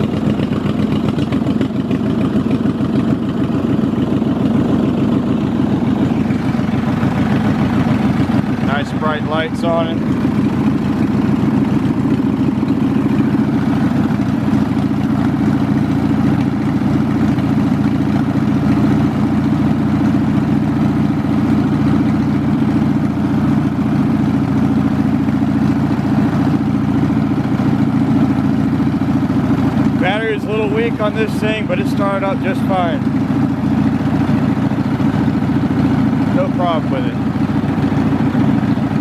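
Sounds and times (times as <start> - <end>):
lawn mower engine running: 0.0 - 39.0.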